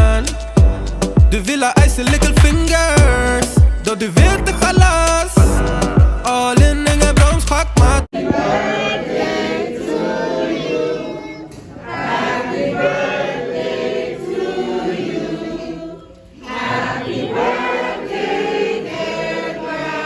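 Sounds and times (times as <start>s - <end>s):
group of voices singing in chorus: 8.1s - 20.0s.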